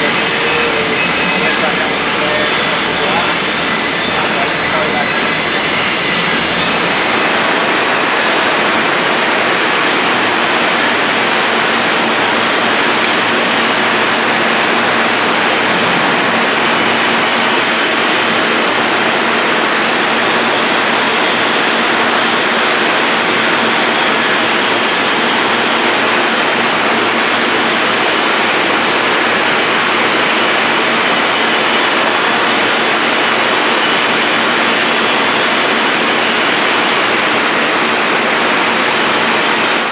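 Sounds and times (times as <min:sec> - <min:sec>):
industrial machine rushing noise: 0:00.0 - 0:30.9.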